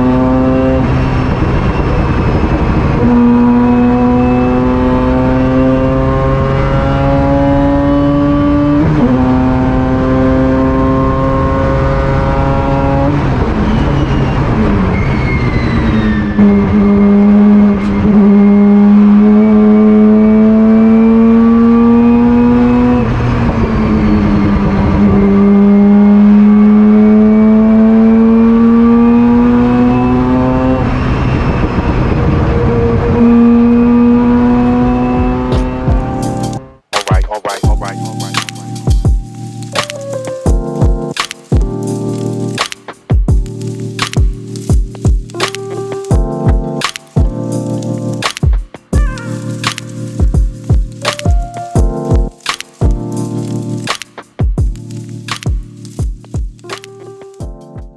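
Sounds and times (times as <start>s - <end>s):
race car engine revving through gears: 0.0s - 13.4s, 16.4s - 35.9s.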